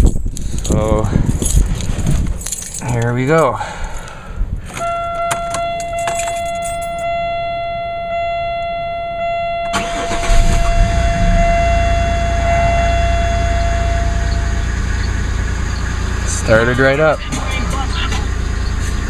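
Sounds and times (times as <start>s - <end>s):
car engine starting and idling: 4.7s - 19.0s
pulsing pitched tone: 4.8s - 17.3s.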